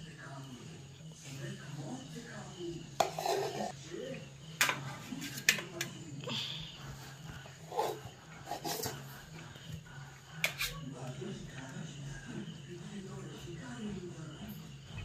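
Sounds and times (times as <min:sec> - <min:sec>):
faint voices: 0:00.0 - 0:15.0
spoon clinking on metal plates: 0:03.0 - 0:03.7, 0:04.6 - 0:06.0.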